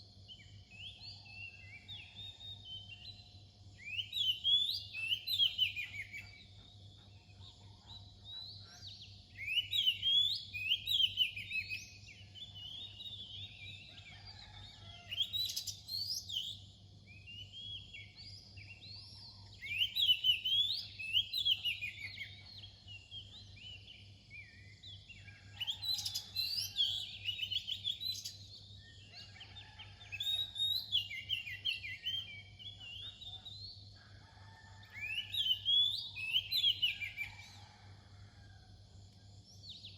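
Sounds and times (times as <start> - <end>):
bird singing whistled notes: 0.0 - 6.3, 9.4 - 13.6, 15.3 - 22.4, 35.0 - 37.4.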